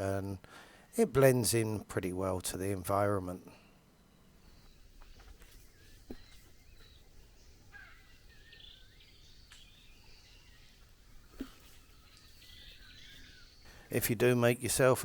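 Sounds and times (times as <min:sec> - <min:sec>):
birds whistling: 0:03.8 - 0:13.9.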